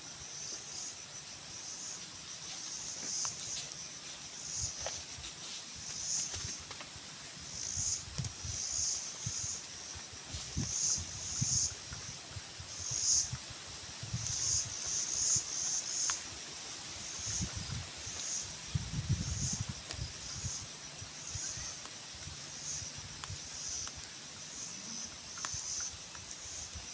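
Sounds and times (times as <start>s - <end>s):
insects chirping raspily: 0.0s - 26.9s.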